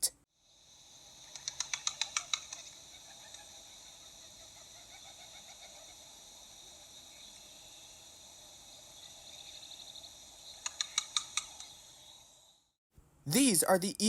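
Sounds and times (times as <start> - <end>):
insects hissing: 0.3 - 14.0
pigeon wings clapping: 1.3 - 3.5, 10.6 - 11.7.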